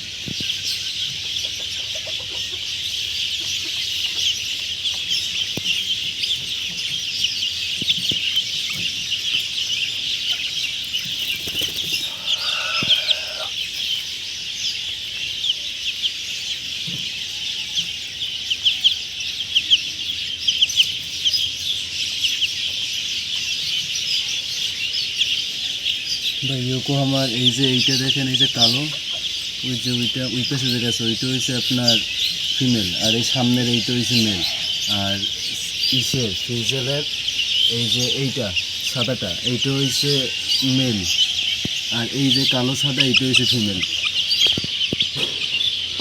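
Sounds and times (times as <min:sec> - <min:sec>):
birds chirping: 0:00.0 - 0:46.0
chicken clucks: 0:00.0 - 0:46.0
long bird call: 0:00.0 - 0:46.0.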